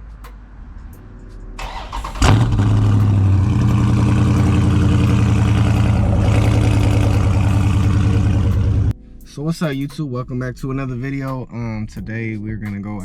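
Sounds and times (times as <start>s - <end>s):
starter motor cranking: 1.6s - 8.9s
car engine starting and idling: 1.6s - 9.0s.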